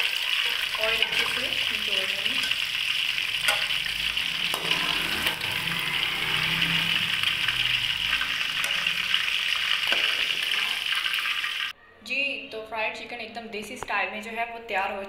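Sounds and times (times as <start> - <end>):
chicken sizzling in hot oil: 0.0 - 11.7.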